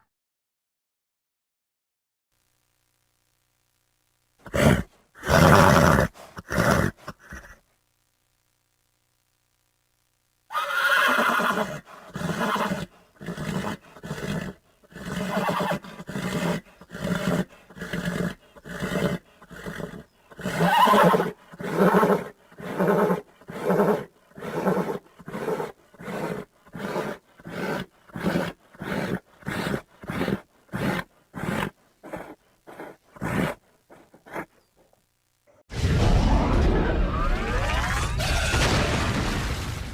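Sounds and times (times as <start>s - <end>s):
horse neighing: 4.5s - 7.6s, 10.5s - 34.5s.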